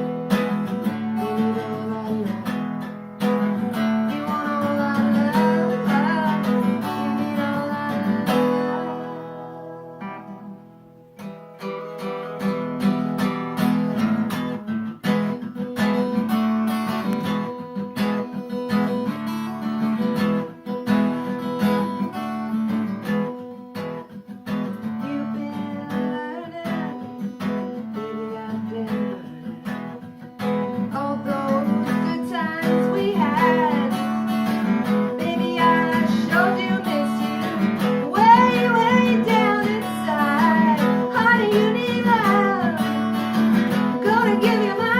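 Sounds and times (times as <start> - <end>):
person singing: 0.0 - 10.6, 24.8 - 44.9
acoustic guitar strumming: 0.0 - 44.9.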